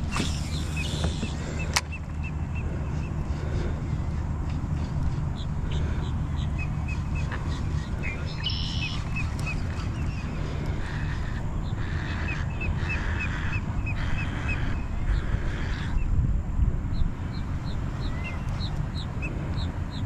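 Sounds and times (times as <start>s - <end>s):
birds chirping: 0.0s - 16.2s, 16.9s - 20.0s
steady low rumble: 0.0s - 20.0s
other bird calls: 5.1s - 16.1s.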